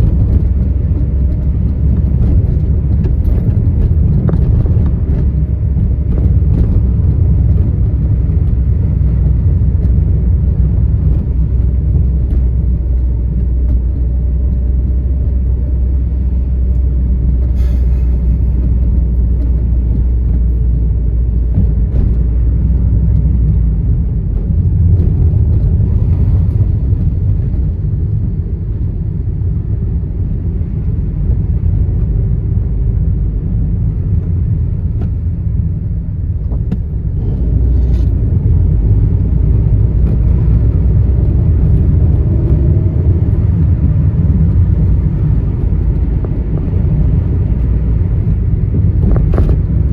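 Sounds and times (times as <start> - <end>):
car engine and tyres rumbling: 0.0 - 49.9.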